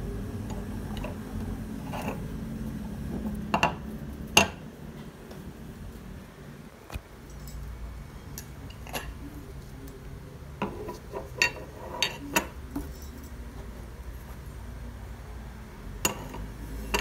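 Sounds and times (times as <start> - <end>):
low steady hum: 0.0 - 17.0
metal medals clinking: 7.2 - 7.8, 12.8 - 13.4.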